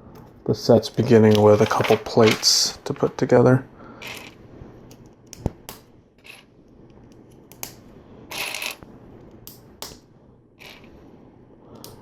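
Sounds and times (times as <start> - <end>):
plastic bricks clicking and clattering: 1.3 - 3.3.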